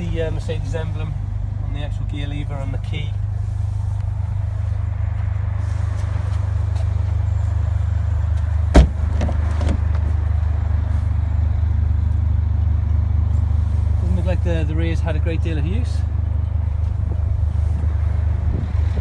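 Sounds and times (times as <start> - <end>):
car engine idling: 0.0 - 19.0
sharp clunk: 8.7 - 9.8.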